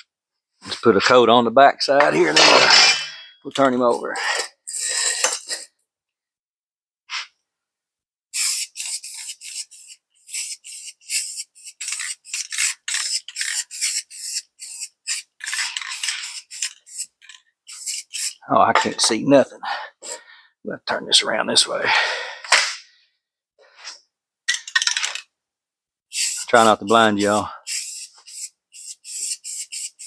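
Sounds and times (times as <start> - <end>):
spray-paint can hissing in bursts: 8.3 - 18.4, 26.1 - 30.0.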